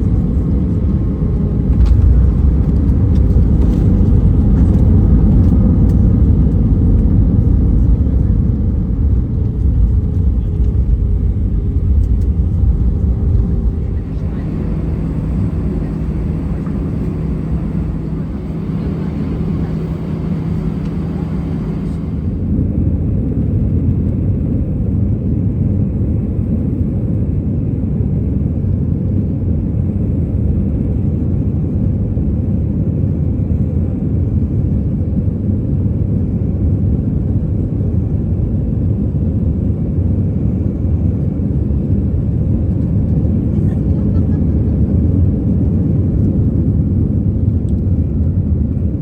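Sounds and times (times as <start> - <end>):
steady hum: 0.0 - 22.8
moving vehicle rumble: 0.0 - 24.5, 39.9 - 49.0.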